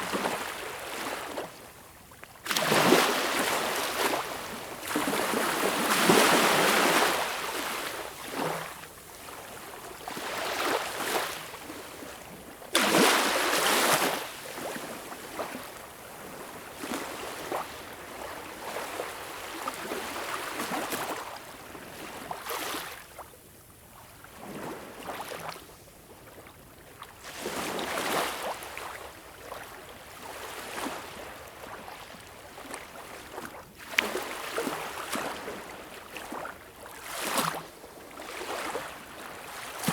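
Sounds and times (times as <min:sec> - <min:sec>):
small sea waves lapping on beach: 0:00.0 - 0:23.3, 0:24.0 - 0:39.9.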